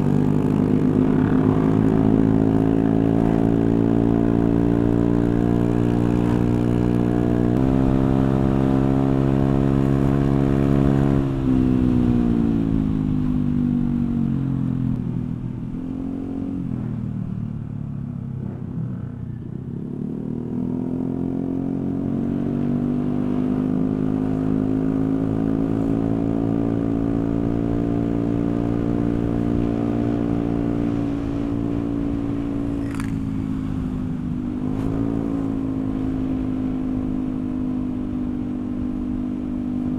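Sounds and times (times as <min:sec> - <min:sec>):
scooter engine with open exhaust: 0:22.6 - 0:39.9.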